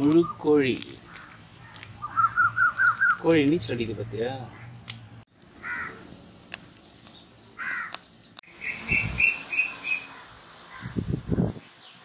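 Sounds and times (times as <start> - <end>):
high bird chirps: 0.0 - 3.3
bird calls: 0.0 - 6.1, 6.8 - 11.0.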